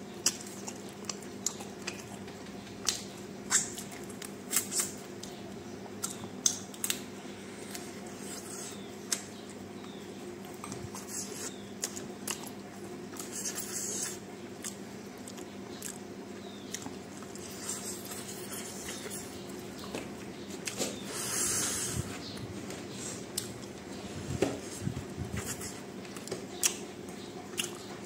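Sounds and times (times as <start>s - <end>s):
steady low hum: 0.0s - 28.0s
person chewing with mouth open: 0.2s - 5.4s, 10.4s - 22.2s, 24.7s - 28.0s.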